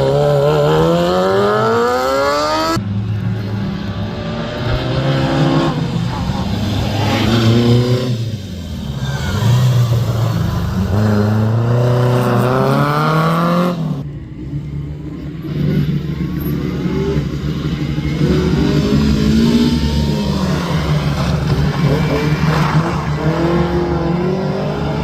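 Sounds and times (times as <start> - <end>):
rally car engine accelerating: 15.4 - 25.0.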